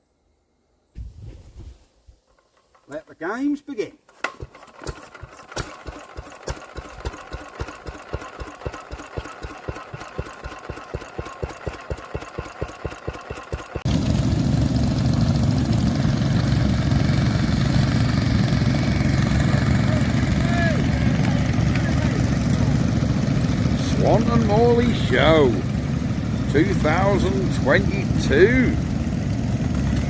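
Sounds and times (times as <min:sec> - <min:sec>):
loud low engine rumble: 0:08.0 - 0:30.0.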